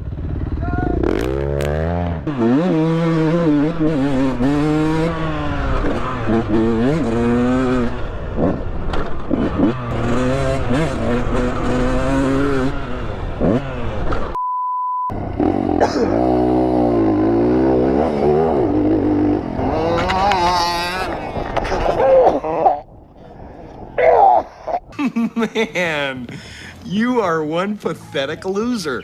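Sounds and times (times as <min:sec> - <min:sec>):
dirt bike engines revving: 0:00.0 - 0:14.4, 0:15.2 - 0:29.0
censor bleep: 0:14.4 - 0:15.2.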